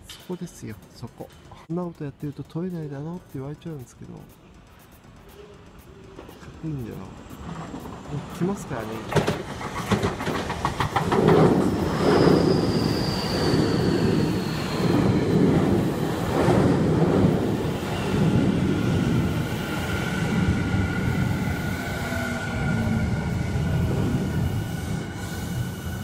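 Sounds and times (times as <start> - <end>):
train wheel clicks: 0.0 - 24.6
train rolling rumble: 0.0 - 26.0
high squeal: 11.6 - 16.0.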